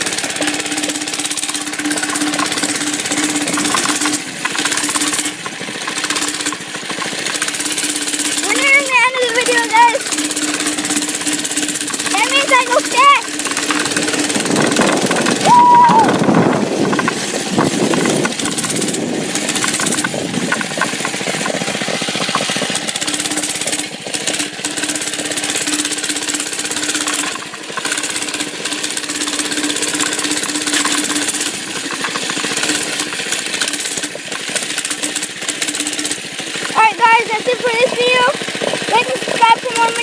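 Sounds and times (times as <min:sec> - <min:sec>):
small engine running at speed: 0:00.0 - 0:40.0
wind noise on microphone: 0:13.9 - 0:22.4.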